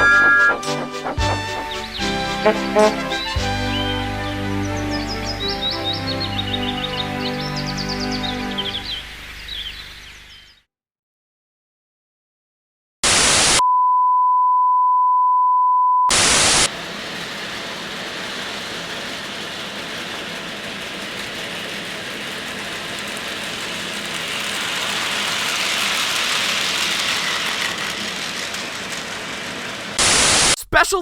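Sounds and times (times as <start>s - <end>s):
steady beep tone: 0.0s - 0.8s
static bursts: 13.0s - 13.6s, 16.1s - 16.7s, 30.0s - 30.8s
static hiss: 13.0s - 13.6s, 16.1s - 19.3s, 29.8s - 30.6s.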